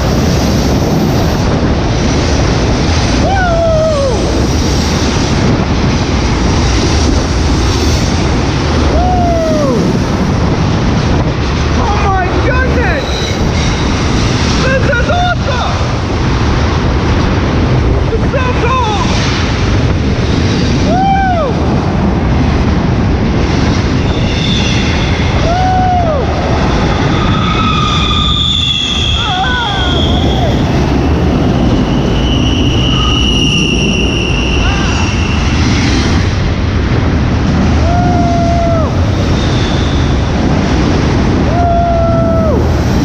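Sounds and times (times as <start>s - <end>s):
wheels roaring on rail: 0.0s - 43.0s
wheel squeal: 13.0s - 14.4s, 23.9s - 25.4s, 26.9s - 36.2s, 39.2s - 40.3s.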